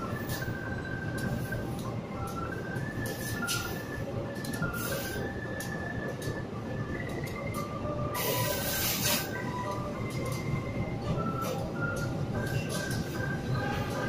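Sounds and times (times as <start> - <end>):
train wheels rumbling on rail: 0.0 - 14.0
burst of hiss: 8.2 - 9.3.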